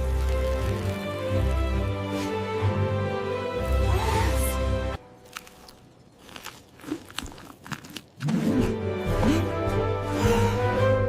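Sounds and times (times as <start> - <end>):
crunchy biting and chewing: 0.0 - 1.2, 5.1 - 8.8.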